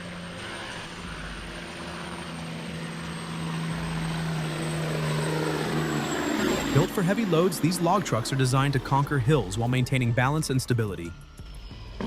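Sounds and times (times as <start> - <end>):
diesel truck engine under load: 0.0 - 9.7.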